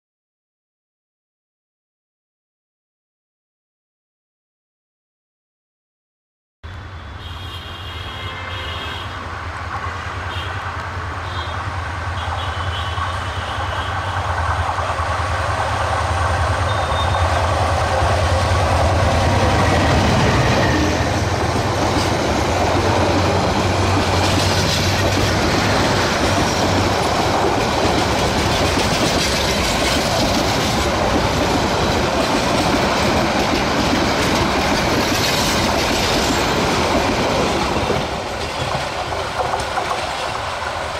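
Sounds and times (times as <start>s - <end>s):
diesel locomotive engine drone: 6.6s - 40.9s
wheels clattering over rail joints: 19.7s - 40.8s.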